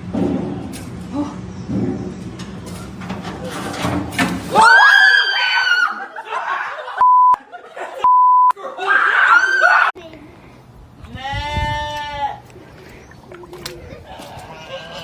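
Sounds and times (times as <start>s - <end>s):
laughter-like sounds: 5.7s - 9.9s, 13.6s - 15.0s
censor bleep: 7.0s - 7.4s, 8.1s - 8.5s.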